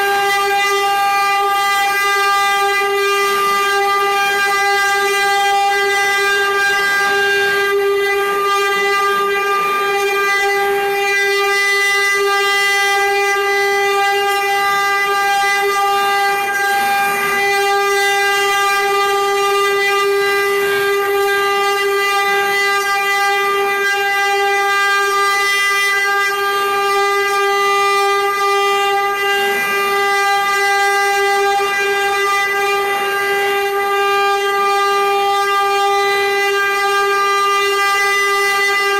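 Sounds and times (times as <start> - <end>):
engraving machine spindles whining: 13.4 - 22.5.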